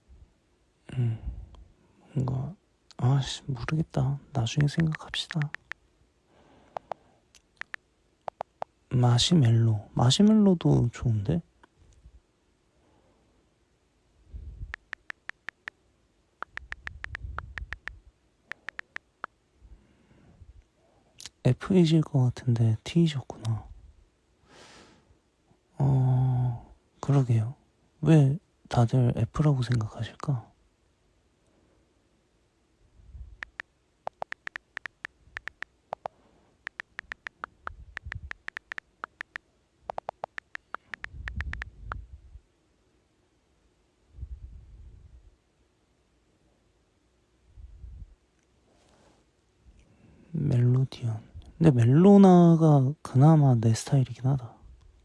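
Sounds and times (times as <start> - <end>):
keyboard key clicks: 4.6 - 5.8, 6.8 - 8.7, 33.4 - 36.1, 36.7 - 37.6, 38.2 - 41.7.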